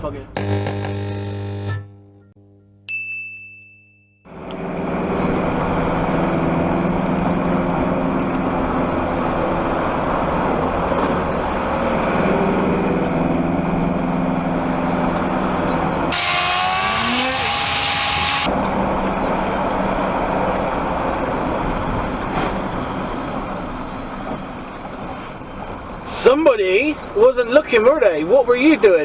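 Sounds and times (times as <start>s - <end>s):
lorry engine droning: 16.1s - 18.6s.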